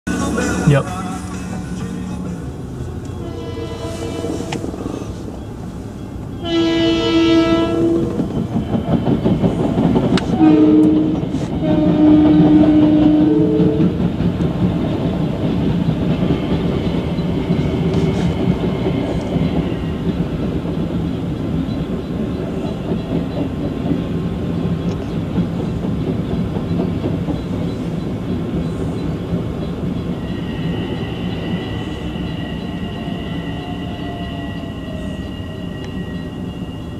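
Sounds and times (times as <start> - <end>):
train cars rumbling past: 0.1 - 36.9
train horn: 3.1 - 5.0, 6.4 - 8.2, 10.2 - 14.0, 30.2 - 36.9
high steady squeal: 30.0 - 36.9.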